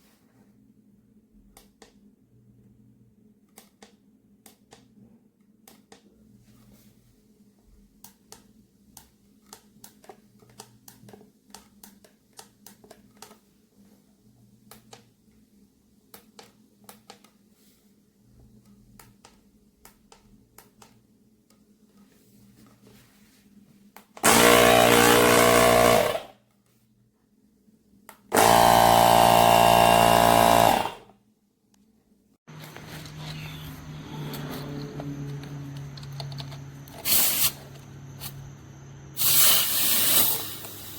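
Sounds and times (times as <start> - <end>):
air compressor motor running: 24.2 - 26.3, 28.3 - 31.1, 32.5 - 40.9.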